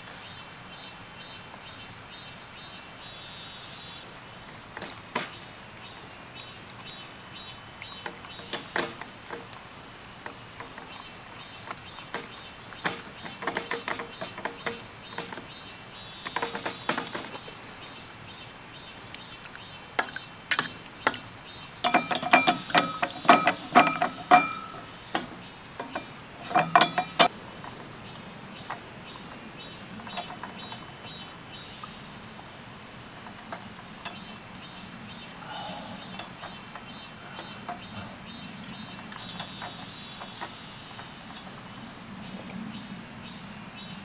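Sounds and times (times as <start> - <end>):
sharp metallic knocks: 10.3 - 15.6, 16.2 - 17.6, 20.0 - 27.8
objects clicking and clinking: 20.0 - 27.3
high-pitched insect drone: 34.0 - 41.3.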